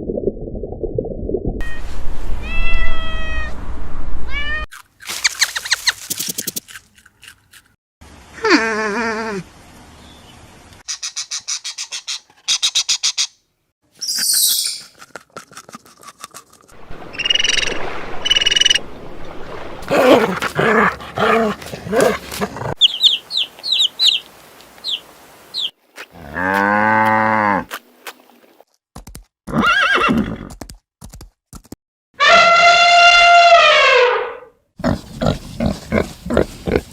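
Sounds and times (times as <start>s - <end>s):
quick high chirps: 14.0s - 15.0s.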